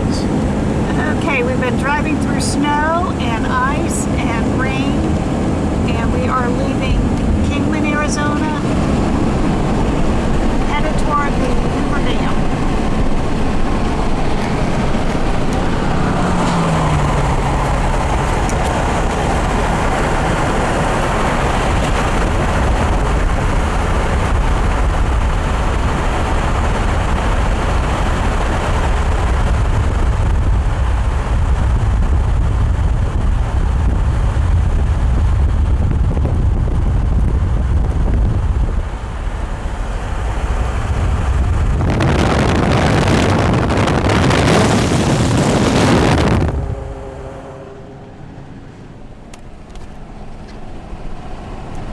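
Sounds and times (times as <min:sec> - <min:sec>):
car road noise: 0:00.0 - 0:51.9
short falling hum: 0:30.1 - 0:51.5.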